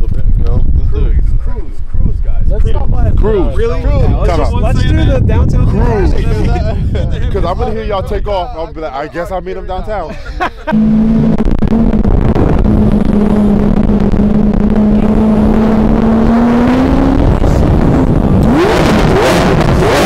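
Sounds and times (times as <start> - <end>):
car engine revving: 10.7 - 20.0.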